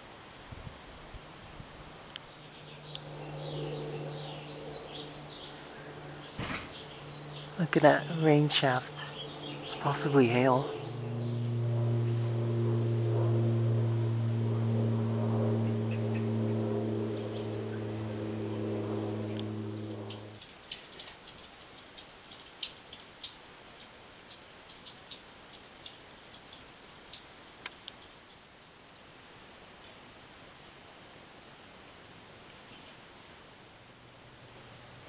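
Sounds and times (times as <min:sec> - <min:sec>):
low mechanical hum: 0:00.0 - 0:35.0
sharp ticks: 0:19.3 - 0:29.1.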